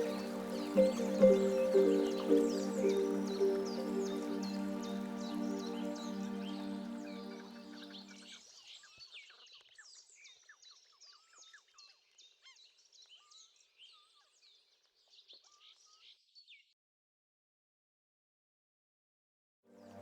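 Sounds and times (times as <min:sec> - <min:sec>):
music track held notes: 0:00.0 - 0:08.2
small birds chirping: 0:00.0 - 0:08.4.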